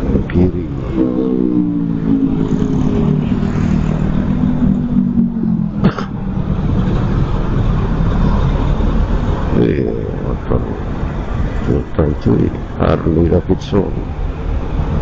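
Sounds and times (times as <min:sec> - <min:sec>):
motorcycle engine: 0:00.0 - 0:11.7
road noise rushing: 0:00.0 - 0:15.0.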